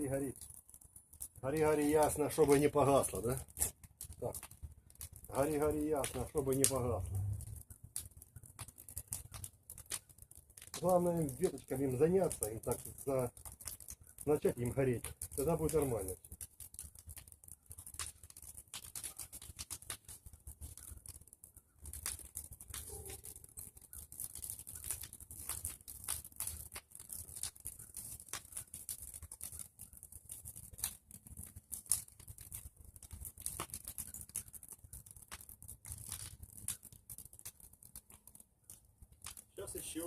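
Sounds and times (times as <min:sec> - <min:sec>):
bonfire crackling and popping: 0:00.0 - 0:40.0.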